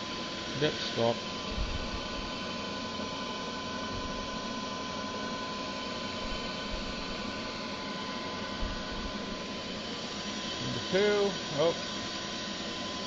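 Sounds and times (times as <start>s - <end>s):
milling machine hum: 0.0s - 13.0s
spindle whine: 0.0s - 13.0s.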